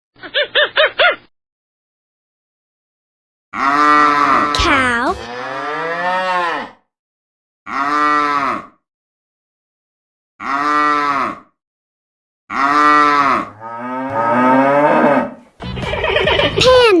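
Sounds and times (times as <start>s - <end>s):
cow mooing: 3.6s - 6.8s, 7.7s - 8.8s, 10.4s - 11.5s, 12.5s - 15.4s.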